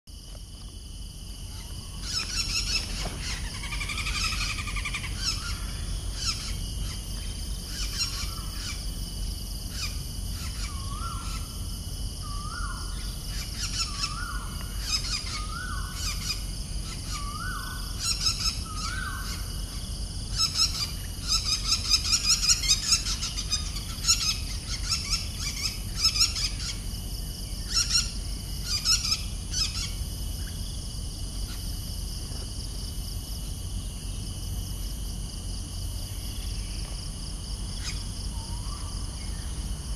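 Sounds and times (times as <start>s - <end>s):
steady insect drone: 0.1s - 39.9s
high bird chirps and trills: 1.5s - 8.8s, 12.3s - 26.8s, 27.6s - 30.6s.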